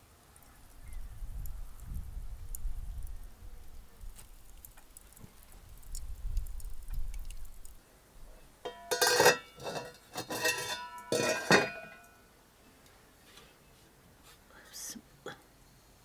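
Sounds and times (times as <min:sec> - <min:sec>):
dishes and cutlery clinking: 0:08.7 - 0:12.1.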